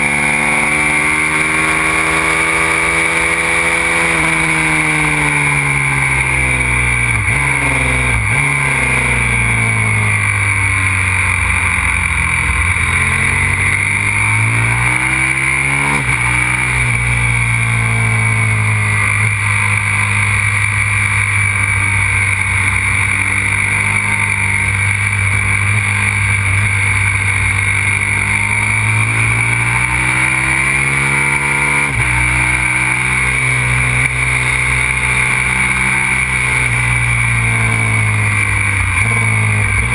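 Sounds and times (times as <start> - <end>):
motorcycle engine running hard: 0.0 - 39.9.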